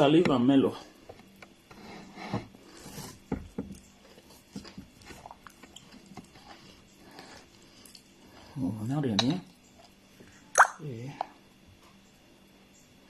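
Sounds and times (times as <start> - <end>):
soft chewing: 3.7 - 8.6
mouth clicks: 10.6 - 10.8.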